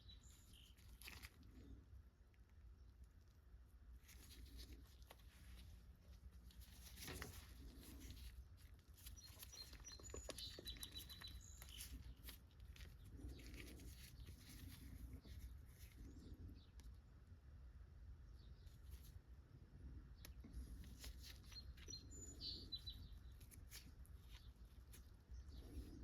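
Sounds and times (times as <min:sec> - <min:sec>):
light scratching: 0:04.0 - 0:16.5.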